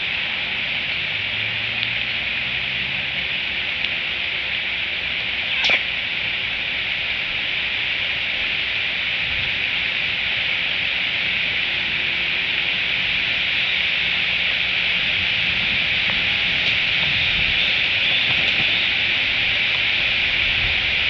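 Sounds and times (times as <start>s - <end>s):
rain on leaves: 0.0s - 21.0s.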